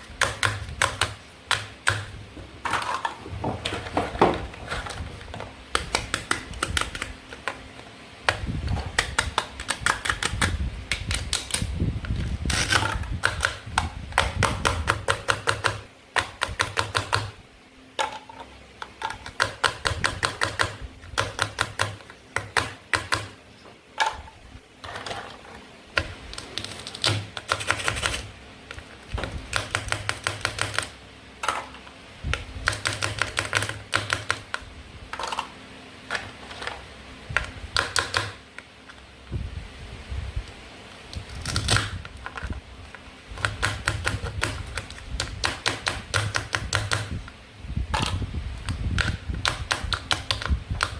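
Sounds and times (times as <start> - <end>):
toy knife cutting plastic: 12.4 - 17.2.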